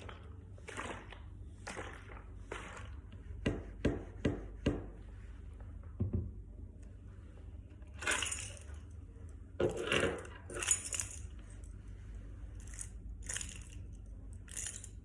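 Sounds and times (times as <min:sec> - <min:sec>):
keys jangling: 0:08.0 - 0:08.8, 0:10.5 - 0:11.3, 0:12.6 - 0:13.9, 0:14.5 - 0:15.0.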